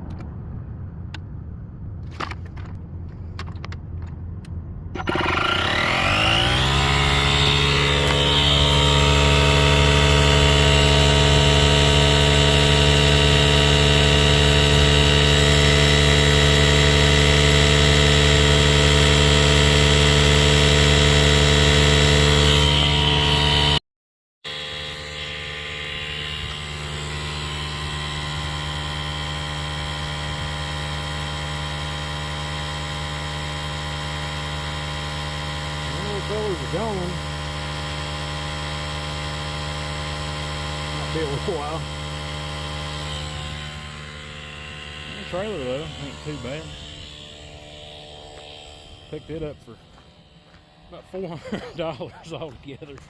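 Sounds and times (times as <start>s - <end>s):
tire inflator buzzing hum: 2.1s - 23.8s, 24.4s - 53.0s.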